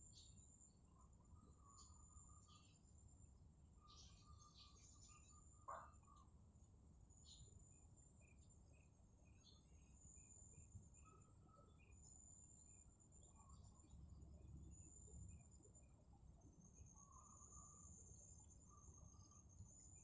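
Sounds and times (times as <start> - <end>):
bird chirping: 0.0 - 0.4, 1.2 - 2.9, 3.8 - 6.3, 7.1 - 12.3
high insect whine: 7.2 - 20.0.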